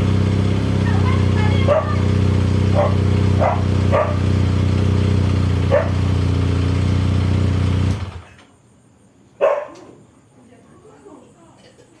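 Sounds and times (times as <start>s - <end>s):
motorcycle engine idling: 0.0s - 8.4s
dog barking: 1.6s - 2.0s, 2.7s - 4.2s, 5.7s - 6.0s, 9.4s - 10.0s.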